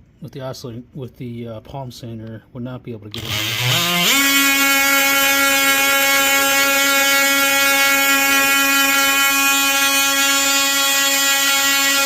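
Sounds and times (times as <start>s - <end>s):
oscillating multi-tool sanding wood: 3.2s - 12.0s.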